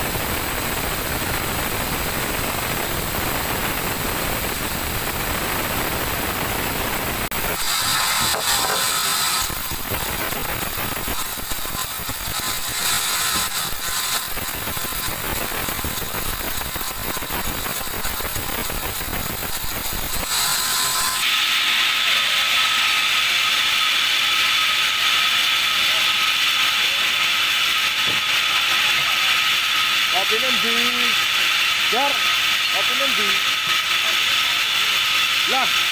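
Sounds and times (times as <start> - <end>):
band sawmill sawing a log: 7.2 - 35.9.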